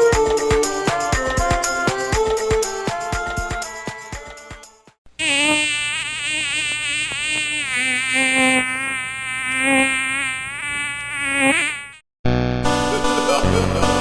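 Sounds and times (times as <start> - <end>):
music: 0.0 - 5.0, 12.3 - 14.0
insect buzzing sound effect: 0.0 - 12.0.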